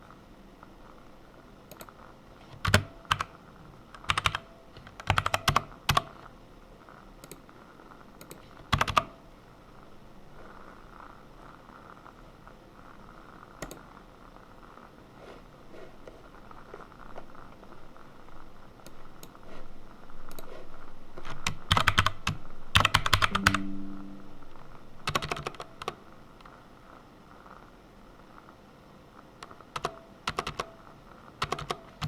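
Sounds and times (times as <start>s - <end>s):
typing on computer keyboard: 1.7s - 6.2s, 8.2s - 9.2s, 21.2s - 23.6s, 25.0s - 26.0s, 29.4s - 30.8s, 31.4s - 32.0s.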